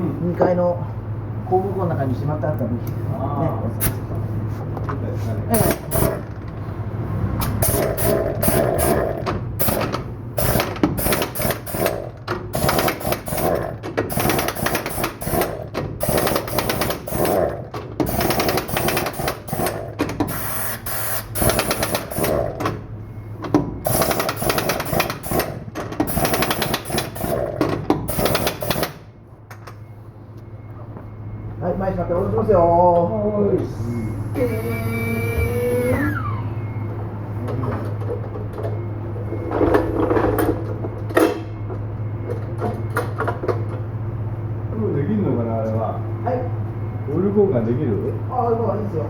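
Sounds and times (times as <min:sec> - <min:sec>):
impact wrench rattling: 0:05.6 - 0:06.6, 0:07.4 - 0:22.7, 0:23.8 - 0:29.0.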